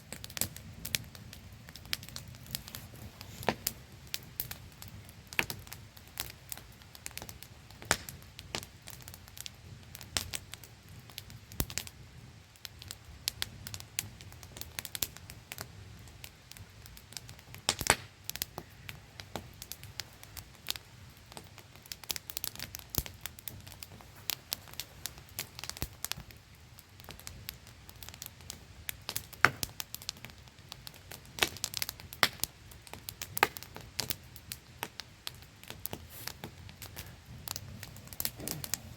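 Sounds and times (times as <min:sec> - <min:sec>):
campfire crackling and popping: 0:00.0 - 0:38.9.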